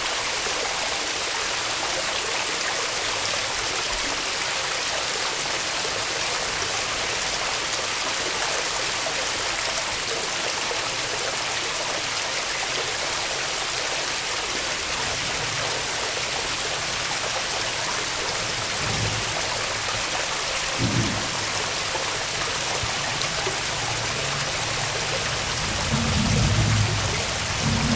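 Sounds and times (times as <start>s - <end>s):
waterfall rushing: 0.0s - 27.9s
low bumps: 20.8s - 27.9s.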